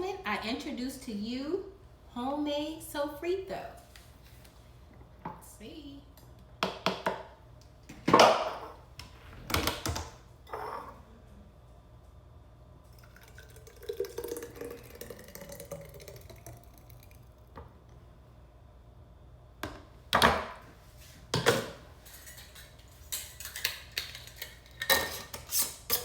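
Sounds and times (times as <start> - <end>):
kitchen utensils scraping: 22.0 - 26.0.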